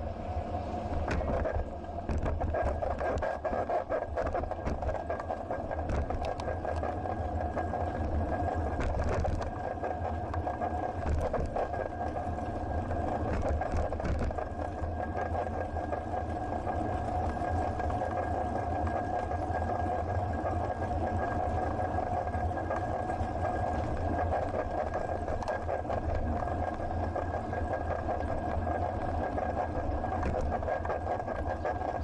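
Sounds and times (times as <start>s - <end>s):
mechanical hum with low rumble: 0.0s - 32.0s
bicycle clicks and rattles: 1.1s - 12.2s, 13.0s - 15.5s.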